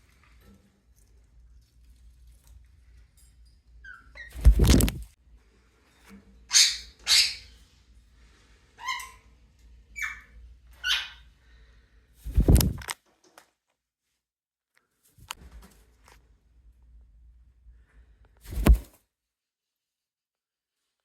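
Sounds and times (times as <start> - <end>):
loud brief rustling: 4.4 - 5.1, 12.2 - 12.9, 18.5 - 19.0
parrots squawking and chirping: 6.5 - 7.6, 8.8 - 9.3, 9.9 - 11.3.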